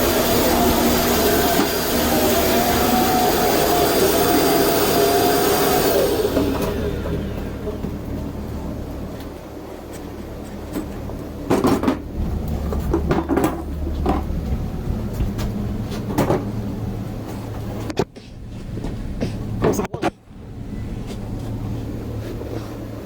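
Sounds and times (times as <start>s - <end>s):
steady low hum: 0.0s - 23.0s
irregular knocks and clatters: 10.5s - 16.6s.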